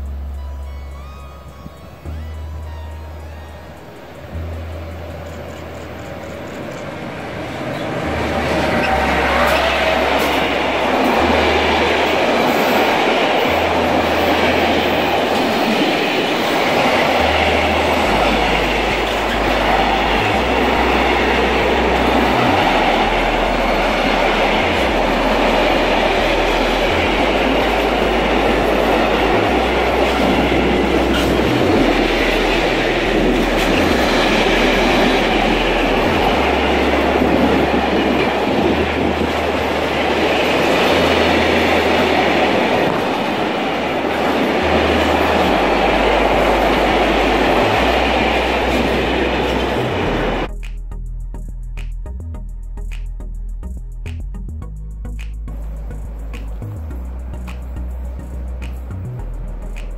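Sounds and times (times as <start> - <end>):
freight train wheels on rails: 1.7 - 50.5, 55.2 - 59.9.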